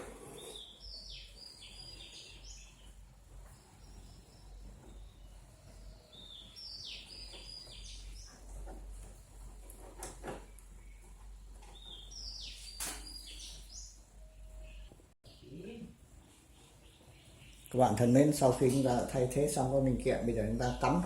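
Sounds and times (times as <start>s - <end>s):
bird singing high chirps: 0.4s - 3.0s, 3.6s - 8.4s, 11.7s - 15.8s.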